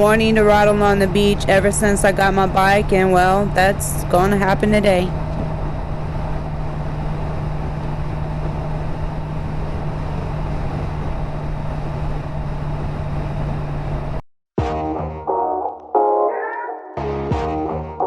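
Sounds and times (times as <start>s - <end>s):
motorcycle engine humming: 0.0s - 14.2s
road noise: 0.0s - 14.2s
rushing wind: 0.0s - 14.2s.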